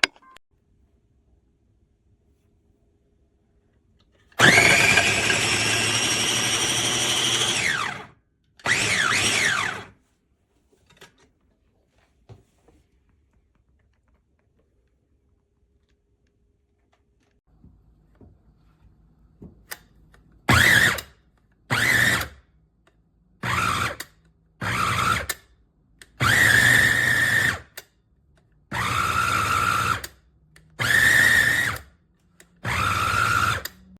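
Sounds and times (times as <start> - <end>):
food processor motor whining: 4.4 - 10.0, 20.5 - 21.1, 21.7 - 22.4, 23.4 - 25.4, 26.2 - 27.8, 28.7 - 30.2, 30.8 - 31.9, 32.6 - 33.9.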